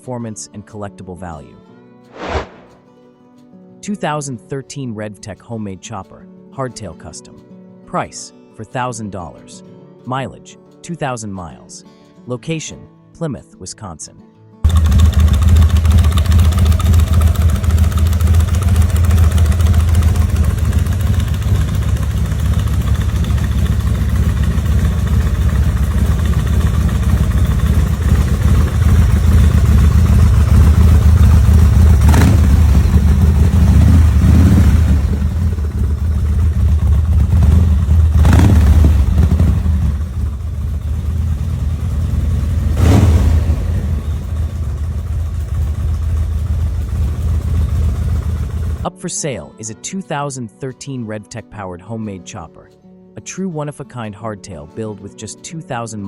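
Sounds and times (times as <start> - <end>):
engine popping: 14.7 - 48.8
motorcycle engine running: 14.7 - 48.9.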